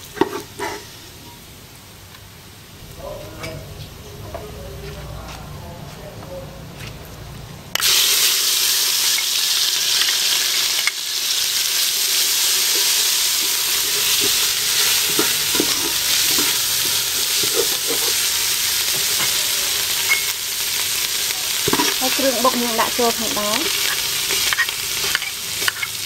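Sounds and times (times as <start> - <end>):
food sizzling in hot oil: 7.7 - 26.0.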